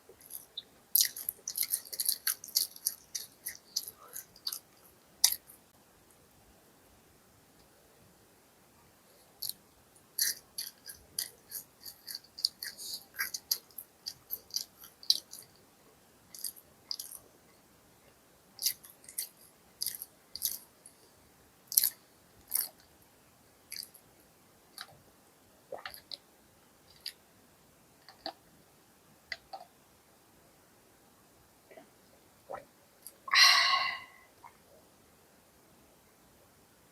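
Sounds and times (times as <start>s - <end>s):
crunchy chewing: 0.1s - 5.6s, 9.2s - 15.6s, 16.3s - 17.3s, 18.6s - 21.0s, 21.7s - 22.9s, 23.7s - 24.0s, 26.9s - 27.2s.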